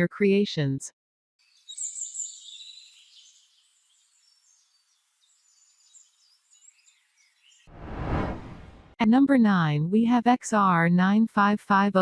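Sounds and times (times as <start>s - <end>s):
loud rush of noise: 7.7s - 8.9s.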